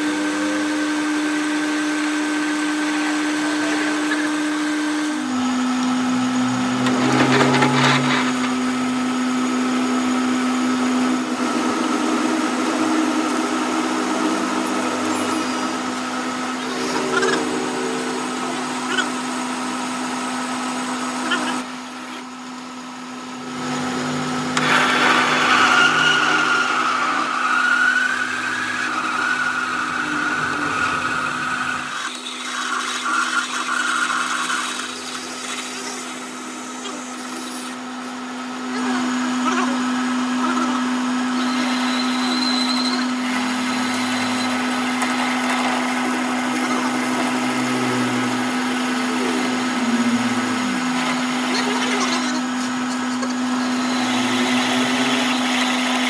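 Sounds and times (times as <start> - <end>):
electric machine humming: 0.0 - 56.0
metal grinding: 5.2 - 21.7, 23.2 - 37.8, 40.8 - 56.0.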